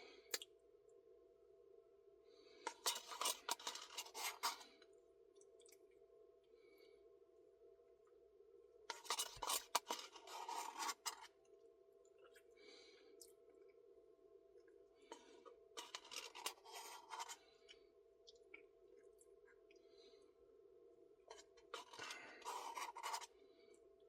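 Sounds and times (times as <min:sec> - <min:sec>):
faint steady hum: 0:00.0 - 0:24.0
spoon scraping inside a cup: 0:02.7 - 0:04.7, 0:08.9 - 0:11.3, 0:15.8 - 0:17.4, 0:21.3 - 0:23.4.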